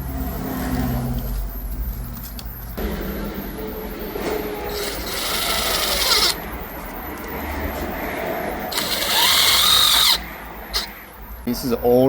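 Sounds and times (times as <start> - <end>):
power drill on metal case: 4.7 - 6.4, 8.6 - 11.0.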